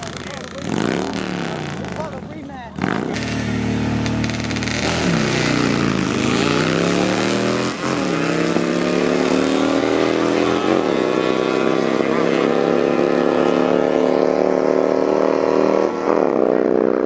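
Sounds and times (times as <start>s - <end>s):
motorcycle engine at full throttle: 0.0s - 17.0s.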